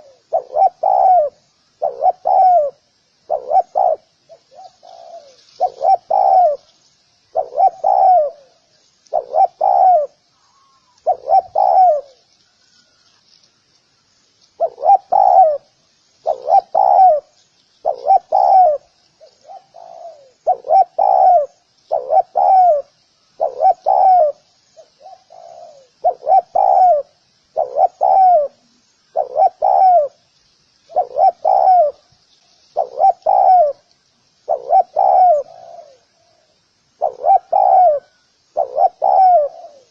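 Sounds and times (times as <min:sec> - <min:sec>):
dove cooing: 0:00.0 - 0:06.7, 0:07.3 - 0:12.2, 0:14.6 - 0:30.2, 0:30.9 - 0:32.1, 0:32.8 - 0:39.9.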